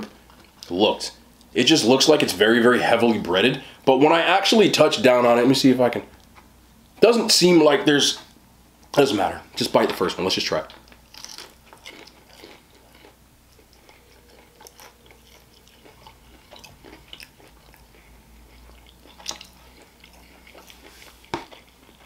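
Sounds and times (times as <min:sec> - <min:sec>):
crunching fried batter: 0:08.9 - 0:22.0
wet chewing mouth sounds: 0:10.8 - 0:22.0.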